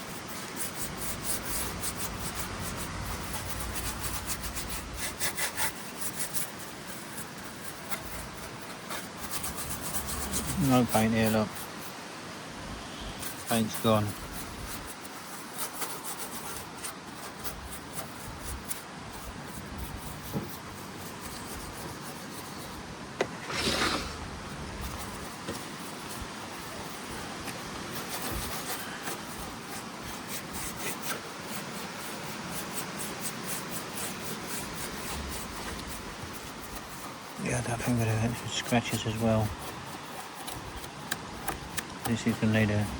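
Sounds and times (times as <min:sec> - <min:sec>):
scrubbing on metal: 0:00.0 - 0:12.0, 0:12.9 - 0:42.9
short hiss: 0:23.3 - 0:24.4.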